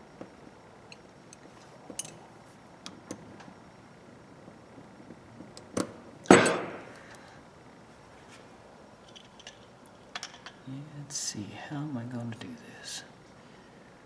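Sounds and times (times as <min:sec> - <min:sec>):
tool knocking down with ringing: 0:06.3 - 0:06.9.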